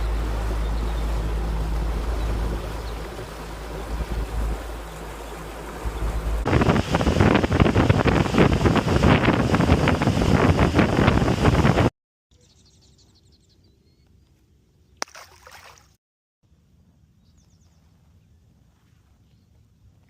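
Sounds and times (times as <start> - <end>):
rush of wind and water: 0.0 - 11.9.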